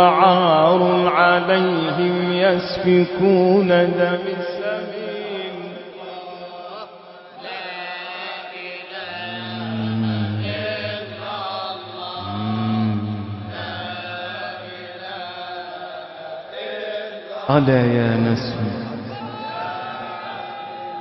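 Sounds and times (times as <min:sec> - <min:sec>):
deep swells of voices: 0:09.0 - 0:15.8.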